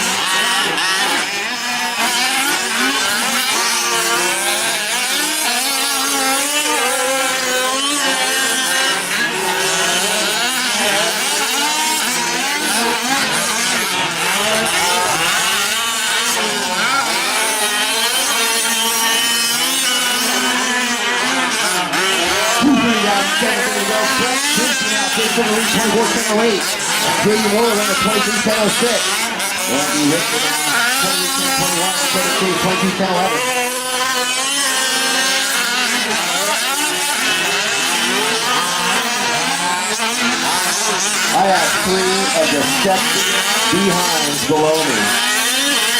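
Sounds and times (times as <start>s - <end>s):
rc truck engines buzzing and revving: 0.0s - 45.9s.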